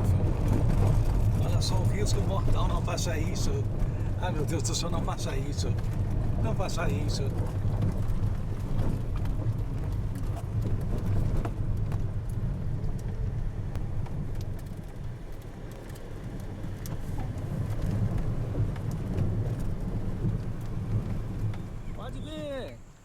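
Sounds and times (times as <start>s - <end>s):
vehicle engine rumble: 0.0s - 23.0s.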